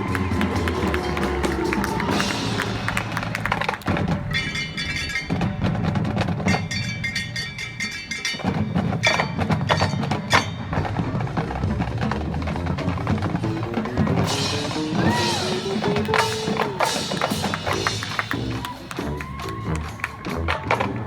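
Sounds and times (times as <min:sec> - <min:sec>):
drum strokes: 0:00.0 - 0:21.0
marching band playing: 0:00.0 - 0:21.0
ringing metallic mallet notes: 0:04.1 - 0:11.7.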